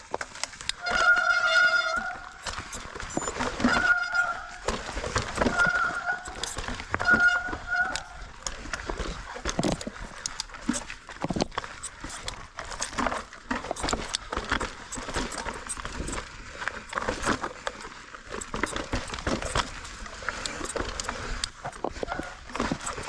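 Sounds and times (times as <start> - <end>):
bike rattling on rough trail: 0.0 - 23.0
bike disc brakes squealing: 0.8 - 8.4.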